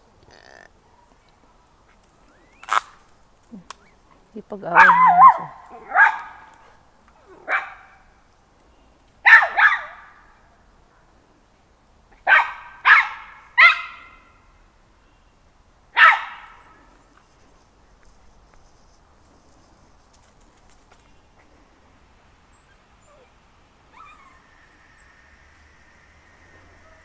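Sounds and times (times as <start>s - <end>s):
dog barking: 4.7s - 8.1s, 9.2s - 10.3s, 12.2s - 14.2s, 16.0s - 16.8s.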